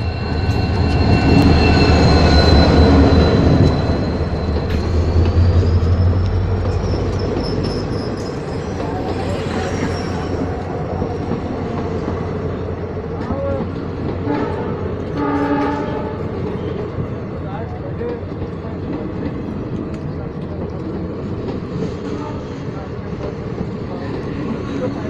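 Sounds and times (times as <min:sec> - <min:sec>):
high wheel squeal: 0:00.0 - 0:11.9
diesel locomotive engine rumble: 0:00.0 - 0:25.0.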